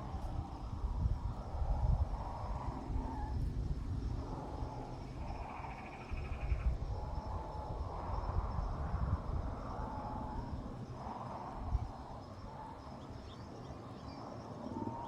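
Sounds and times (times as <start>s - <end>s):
faint wavering calls: 2.4s - 3.5s, 4.1s - 15.0s.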